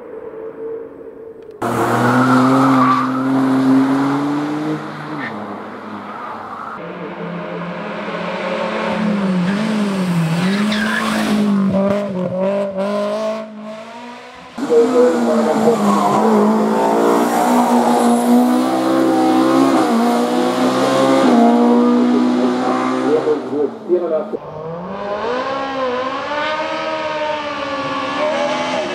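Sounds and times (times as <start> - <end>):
race car engines at full throttle: 1.4 - 28.9.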